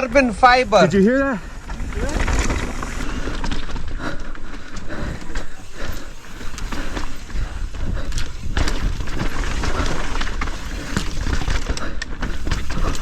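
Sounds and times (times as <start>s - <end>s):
tyres on dirt: 0.0s - 13.0s
bike knocks and clatter: 1.6s - 13.0s.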